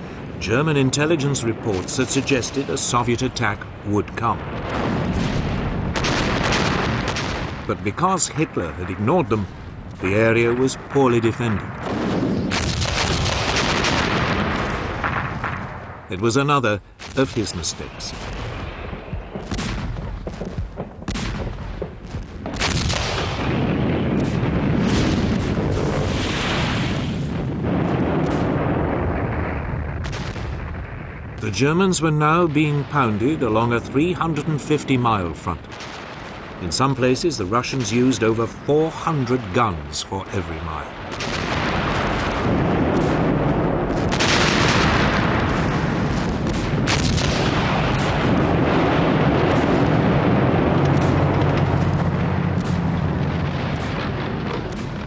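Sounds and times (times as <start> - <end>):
gun blasts and shell explosions: 0.0 - 16.4, 17.0 - 55.0
continuous rumble: 27.2 - 55.0.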